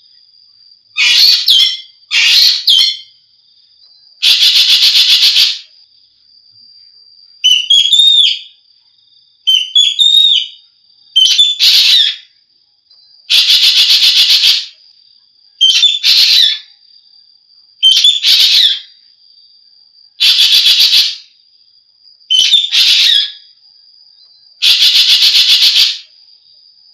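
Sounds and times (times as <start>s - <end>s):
starling harsh hissing calls: 1.0s - 3.1s, 4.2s - 5.7s, 11.2s - 12.3s, 13.3s - 14.8s, 15.6s - 16.7s, 17.8s - 19.0s, 20.2s - 21.3s, 22.3s - 23.4s, 24.6s - 26.1s.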